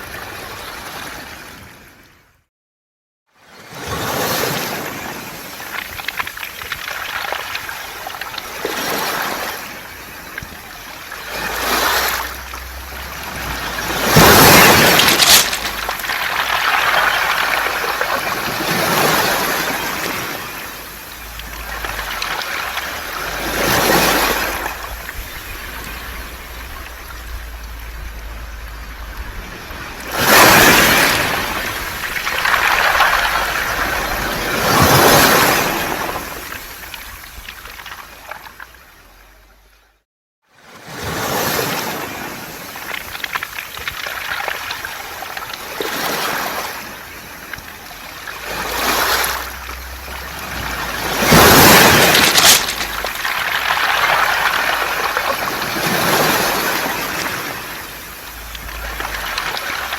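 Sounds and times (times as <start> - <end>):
waves washing over pebbles: 3.7 - 38.8, 40.8 - 59.9
pebbles rattling in backwash: 11.5 - 28.0, 30.2 - 35.8, 48.8 - 57.3.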